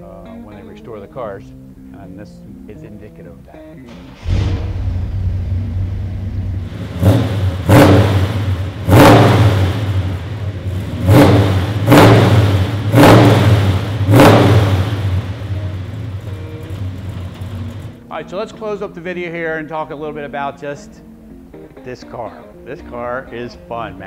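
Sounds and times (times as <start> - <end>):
engine revving: 3.9 - 18.0
engine starting and idling: 3.9 - 18.0.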